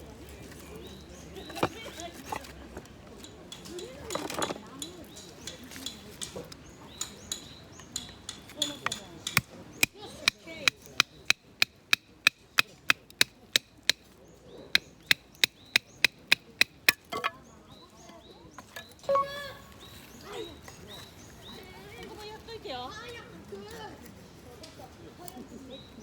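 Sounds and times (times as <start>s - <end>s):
knife and baton splitting wood: 1.4s - 4.6s, 7.3s - 17.5s.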